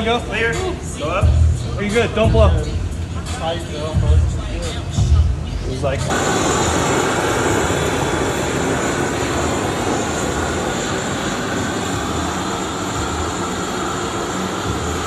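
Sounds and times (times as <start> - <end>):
gas burners roaring: 0.0 - 15.0
faint whine: 2.6 - 15.0.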